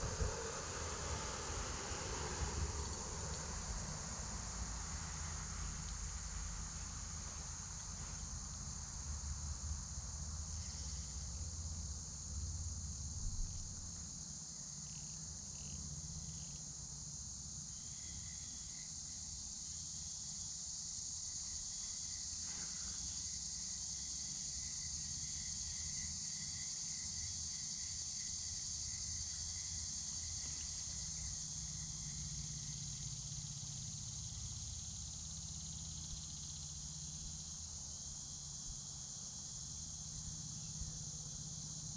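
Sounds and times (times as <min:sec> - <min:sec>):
low rumble: 0:00.0 - 0:05.0
insects buzzing: 0:00.0 - 0:41.9.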